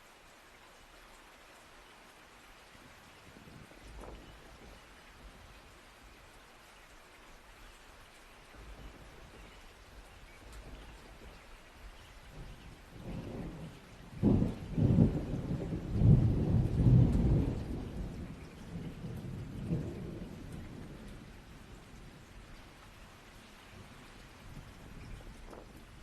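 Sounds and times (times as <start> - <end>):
steady rain: 0.0 - 26.0
thunder rumbling and cracking: 12.3 - 22.3.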